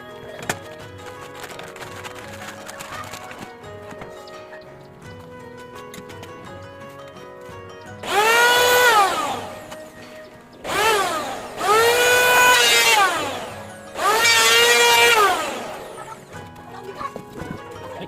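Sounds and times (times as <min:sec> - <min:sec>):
electric drill whining: 0:08.0 - 0:16.1.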